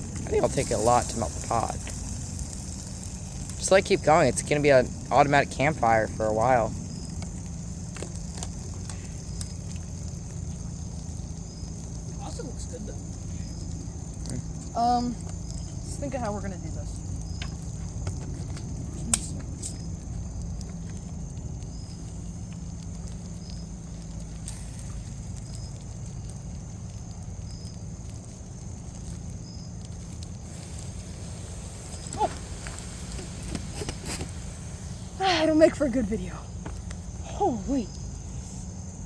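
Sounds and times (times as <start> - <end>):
campfire rumbling: 0.0 - 39.0
sharp pop of fire: 17.2 - 20.0, 29.9 - 35.2.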